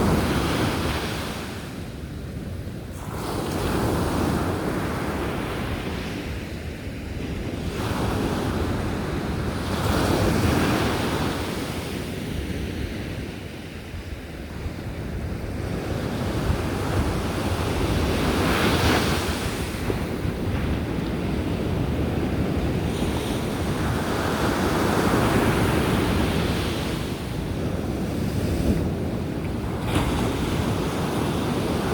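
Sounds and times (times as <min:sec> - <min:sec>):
sea waves breaking on beach: 0:14.6 - 0:31.9.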